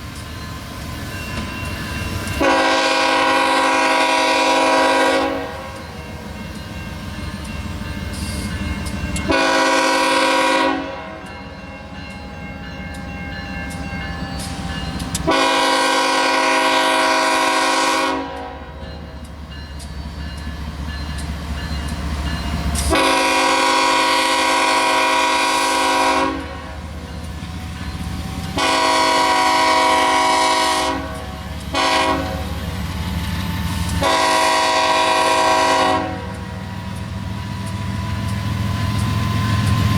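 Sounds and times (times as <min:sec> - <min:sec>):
locomotive engine rumbling: 0:00.0 - 0:39.9
train wheels rumbling: 0:00.0 - 0:39.9
locomotive air horn blasts: 0:02.4 - 0:05.8, 0:09.3 - 0:11.3, 0:15.2 - 0:18.8, 0:22.9 - 0:26.8, 0:28.5 - 0:32.6, 0:34.0 - 0:36.4.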